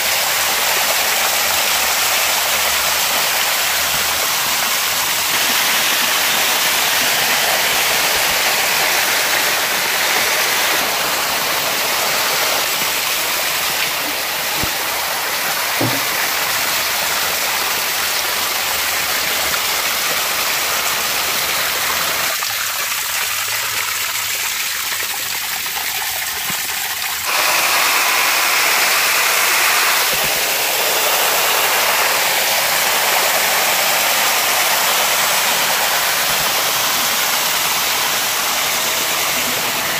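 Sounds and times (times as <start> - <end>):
rushing floodwater: 0.0 - 25.7, 27.2 - 39.9.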